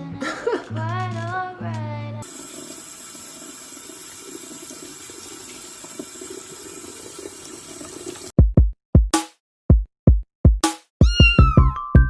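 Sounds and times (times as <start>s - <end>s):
water running from a tap: 2.2s - 8.3s
drum machine beat: 8.4s - 12.0s.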